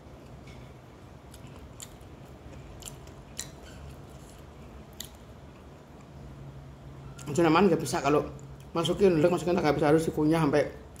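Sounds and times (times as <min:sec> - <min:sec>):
steady low hum: 0:00.0 - 0:11.0
person chewing food: 0:00.2 - 0:06.3.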